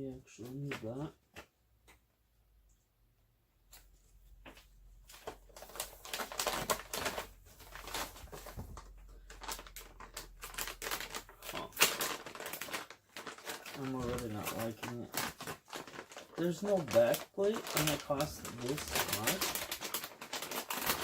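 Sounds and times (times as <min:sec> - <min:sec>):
packaging rustling and crinkling: 0:04.5 - 0:21.0.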